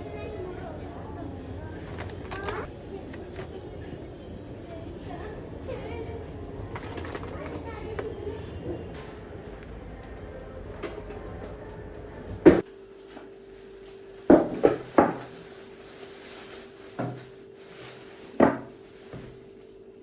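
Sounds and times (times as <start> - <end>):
knocks of cupboard doors and dishes: 12.4 - 12.6, 14.3 - 15.3, 18.4 - 18.8.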